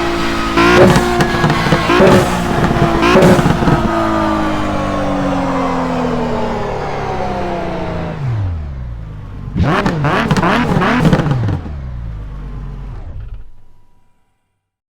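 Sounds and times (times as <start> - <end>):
race car engine passing by: 0.0 - 9.0
race car engine revving: 0.0 - 13.9.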